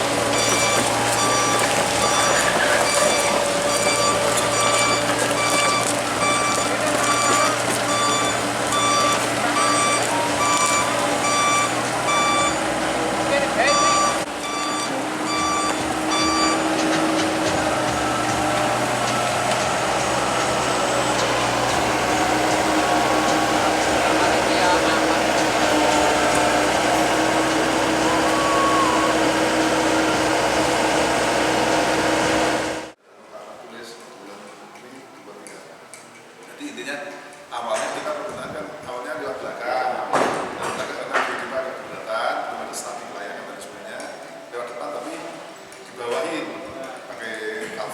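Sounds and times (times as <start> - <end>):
excavator travel alarm beeping: 0.0 - 32.9
diesel engine running: 0.0 - 33.0.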